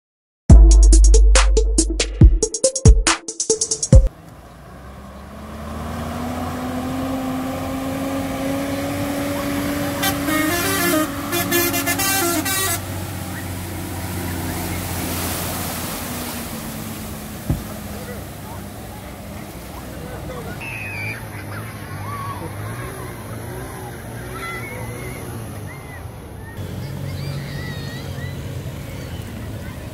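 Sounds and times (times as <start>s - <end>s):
vehicle engine running: 4.0s - 29.9s
car horn toots: 9.4s - 13.4s.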